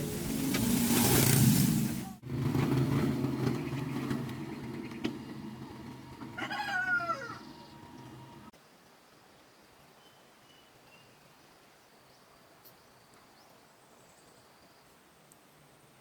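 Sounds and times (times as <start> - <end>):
low motor drone: 0.0 - 8.5
animal call falling in pitch: 6.4 - 7.6.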